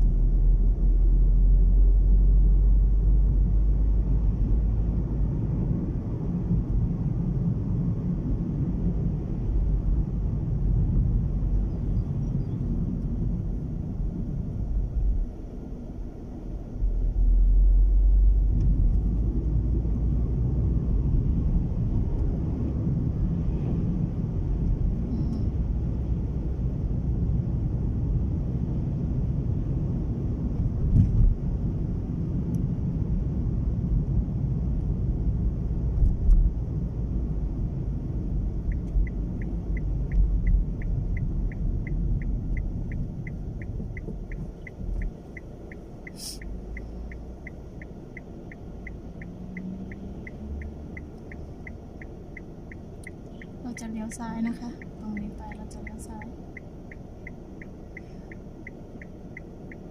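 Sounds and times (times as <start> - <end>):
road noise: 0.0 - 59.9
wind buffeting car: 0.0 - 59.9
turn signal ticking: 36.0 - 59.9.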